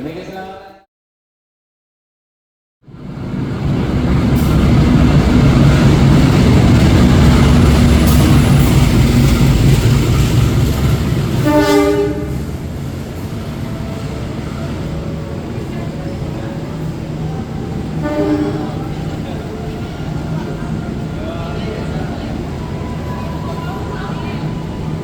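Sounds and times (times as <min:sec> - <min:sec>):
train rumbling past: 0:02.8 - 0:25.0
train horn blast: 0:11.3 - 0:12.6, 0:17.8 - 0:19.2.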